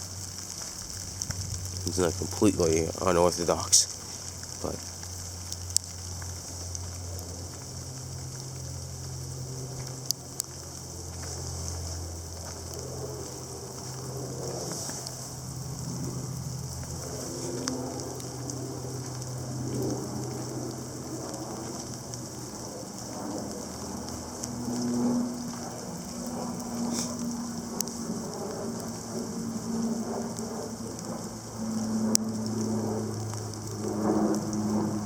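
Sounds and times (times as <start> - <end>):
sleet hissing and pattering: 0.0 - 35.0.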